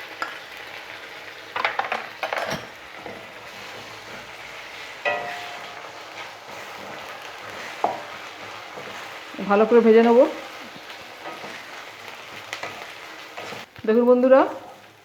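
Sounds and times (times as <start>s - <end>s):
pastes sizzling in hot oil: 0.0s - 15.0s
metal spatula scraping a pan: 2.5s - 13.7s
ringing metal clink: 5.1s - 5.7s.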